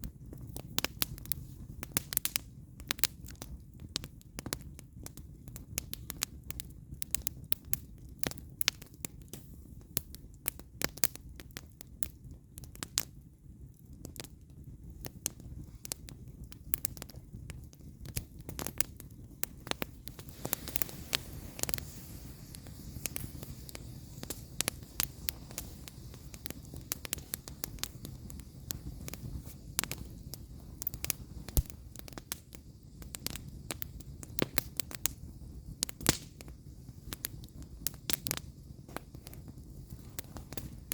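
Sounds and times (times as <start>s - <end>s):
campfire crackling and popping: 0.0s - 40.9s
low fire rumble: 0.0s - 40.9s
fire hissing: 15.4s - 40.9s.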